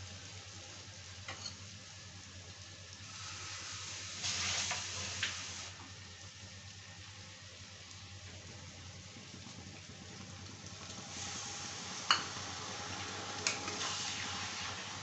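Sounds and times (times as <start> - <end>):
vegetables sizzling in a pan: 0.0 - 15.0.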